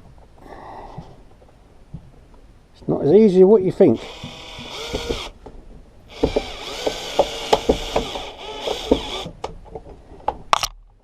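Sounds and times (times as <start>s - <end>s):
power drill running: 4.0s - 5.4s, 6.1s - 9.3s.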